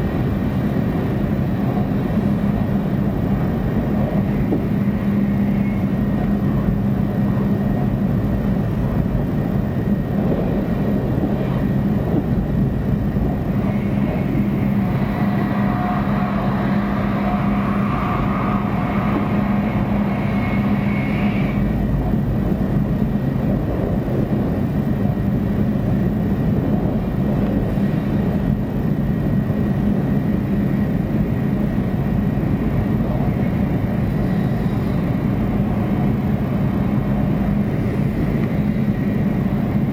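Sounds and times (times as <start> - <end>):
train cabin rumble: 0.0 - 39.9
hiss with faint whine: 13.1 - 22.3.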